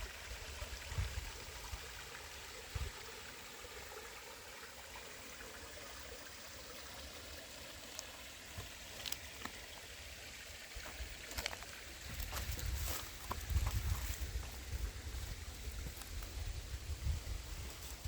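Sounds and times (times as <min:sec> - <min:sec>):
creek water over small cascades: 0:00.0 - 0:18.0.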